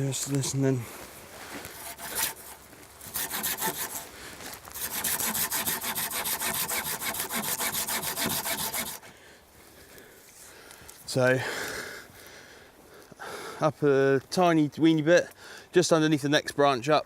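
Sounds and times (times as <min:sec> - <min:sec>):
hand saw cutting wood: 0:01.8 - 0:04.1, 0:04.8 - 0:09.0.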